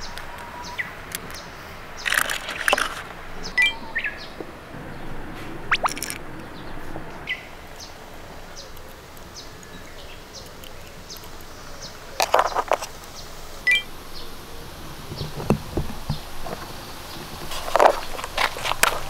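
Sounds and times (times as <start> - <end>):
small birds chirping: 0.0 - 5.1, 5.7 - 19.0
toy cars clicking on plastic: 2.0 - 3.2, 5.8 - 6.2, 8.7 - 13.6, 17.4 - 19.0.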